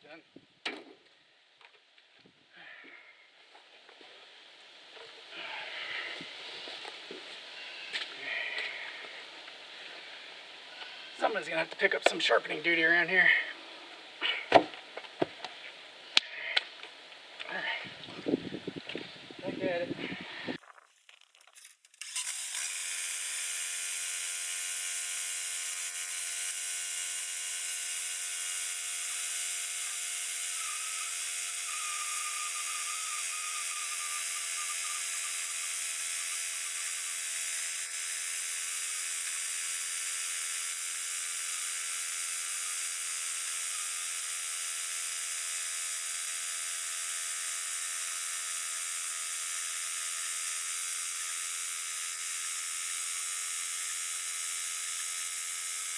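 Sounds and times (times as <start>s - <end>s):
sawmill whirring cutting log: 22.0s - 55.9s.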